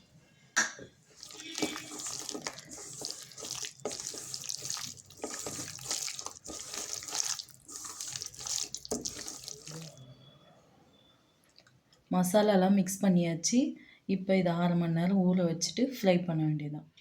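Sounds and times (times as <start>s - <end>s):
hands squelching in wet marinade: 1.1s - 10.0s.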